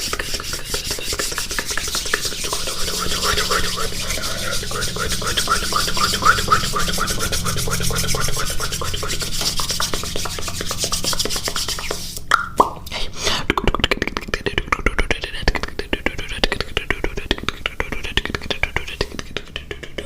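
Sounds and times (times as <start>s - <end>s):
rising mouth chirps: 0.6s - 10.7s
wet mouth clicks: 11.8s - 20.0s.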